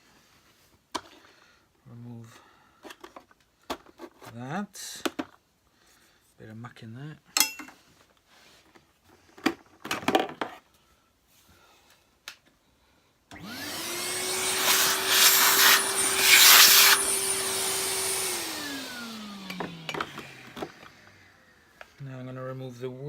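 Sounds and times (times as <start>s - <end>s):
vacuum cleaner running: 13.3s - 22.0s
vacuum cleaner winding down: 13.3s - 22.0s.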